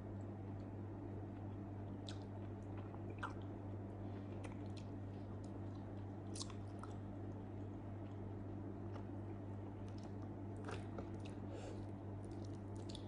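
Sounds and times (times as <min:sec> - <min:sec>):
low electrical hum: 0:00.0 - 0:13.0
close chewing: 0:12.2 - 0:13.0.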